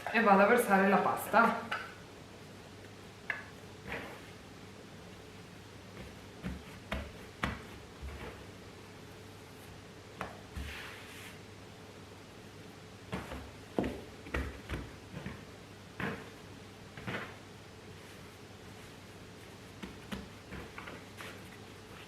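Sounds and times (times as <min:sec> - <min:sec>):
dough swish: 0:03.8 - 0:04.4, 0:05.9 - 0:08.6, 0:09.5 - 0:11.4, 0:17.0 - 0:22.0
dough thumping on counter: 0:06.0 - 0:08.4, 0:13.1 - 0:16.4.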